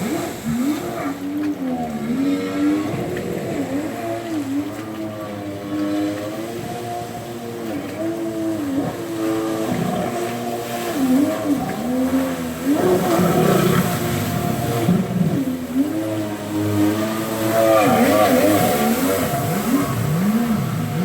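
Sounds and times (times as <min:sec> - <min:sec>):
jet ski engine revving: 0:00.0 - 0:21.0.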